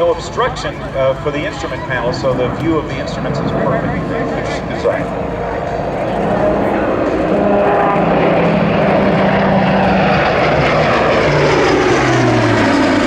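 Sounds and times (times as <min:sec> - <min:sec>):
turboprop aircraft passing: 0:00.0 - 0:13.0.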